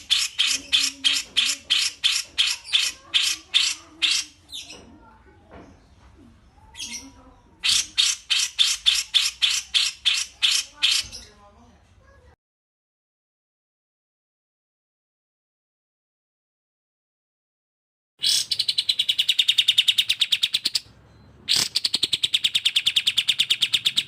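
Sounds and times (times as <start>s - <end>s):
bird song of sharp chirps: 0.0s - 11.5s, 18.2s - 24.0s.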